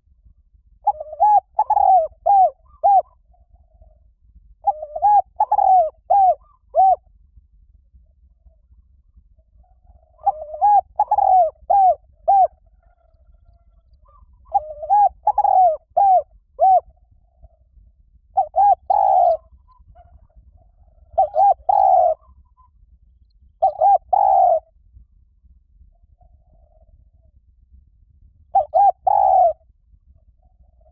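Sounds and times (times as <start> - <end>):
dove cooing: 0.8 - 7.1, 9.6 - 17.6, 18.3 - 22.8, 23.6 - 24.7, 28.5 - 29.7.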